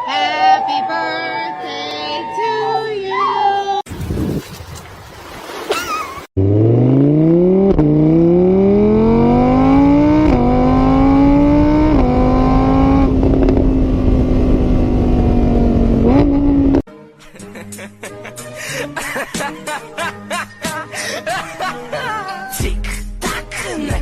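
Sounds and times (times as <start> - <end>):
engine revving through gears: 6.4 - 16.8.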